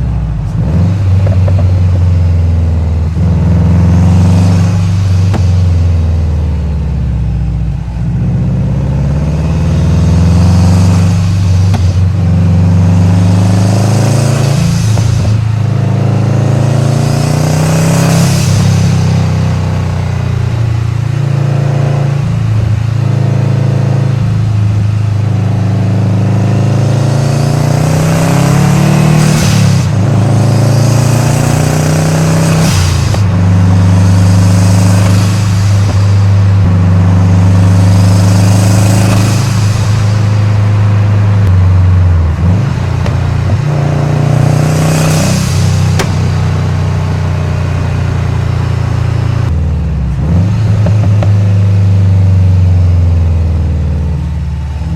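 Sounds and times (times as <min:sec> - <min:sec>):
car engine accelerating: 0:00.0 - 0:54.9
hiss of air on gear shifts: 0:04.2 - 0:06.4, 0:13.4 - 0:15.7, 0:16.8 - 0:19.6, 0:27.3 - 0:49.5.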